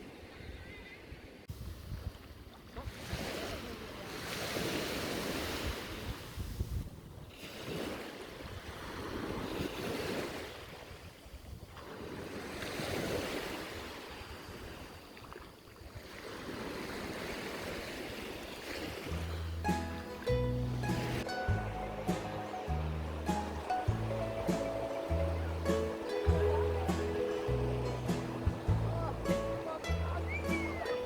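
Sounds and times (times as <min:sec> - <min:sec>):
wind on microphone: 0:00.0 - 0:15.1
sea waves washing onto shore: 0:16.0 - 0:31.0.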